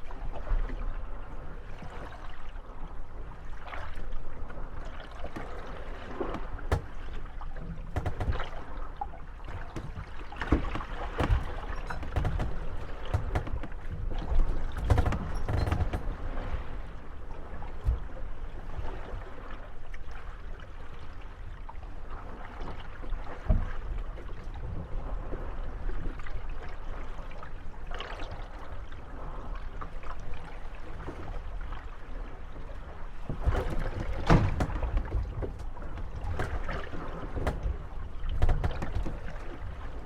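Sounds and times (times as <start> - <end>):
water lapping: 0.0 - 40.0
wooden hulls knocking and creaking: 5.1 - 18.3, 33.1 - 40.0.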